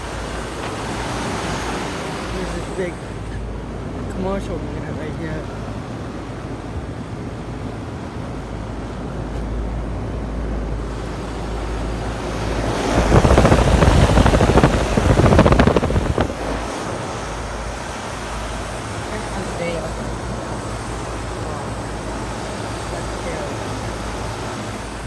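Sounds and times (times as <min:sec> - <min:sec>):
wind buffeting microphone: 0:09.6 - 0:22.7
low rumble: 0:11.5 - 0:17.8.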